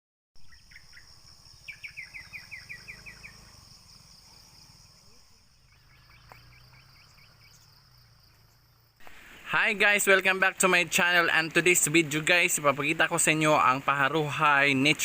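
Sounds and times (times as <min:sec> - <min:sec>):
bird chirping: 0:00.4 - 0:10.0
crickets droning: 0:00.4 - 0:15.0.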